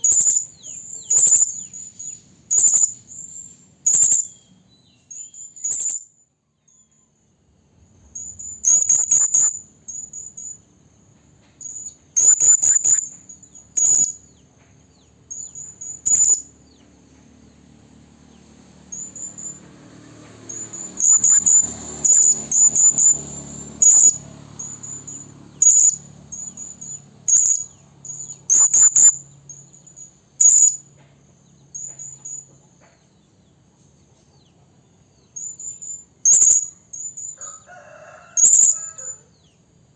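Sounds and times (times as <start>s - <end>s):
parrot high thin chirps: 11.6s - 14.2s, 35.4s - 39.2s.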